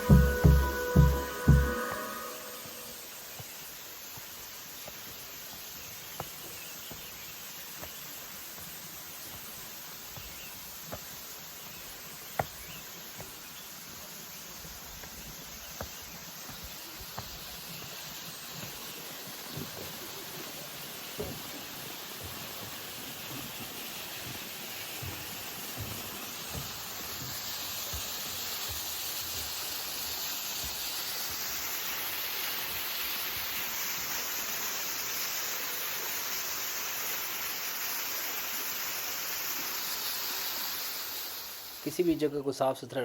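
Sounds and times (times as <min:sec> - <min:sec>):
low thumps: 0:00.0 - 0:02.2.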